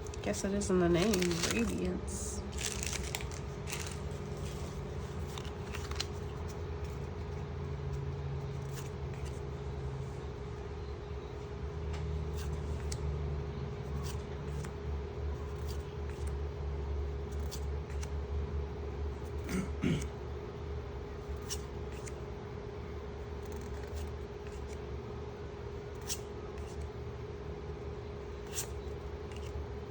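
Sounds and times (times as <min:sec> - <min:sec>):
steady low hum: 0:00.0 - 0:29.9
cards sliding and snapping: 0:02.6 - 0:07.1, 0:12.3 - 0:13.1, 0:17.3 - 0:18.2, 0:21.3 - 0:22.2, 0:23.4 - 0:24.8, 0:26.0 - 0:26.9, 0:28.4 - 0:29.5.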